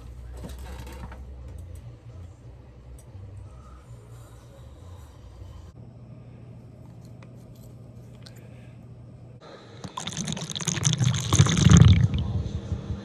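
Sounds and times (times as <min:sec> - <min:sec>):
liquid pouring into container: 0:09.8 - 0:12.9.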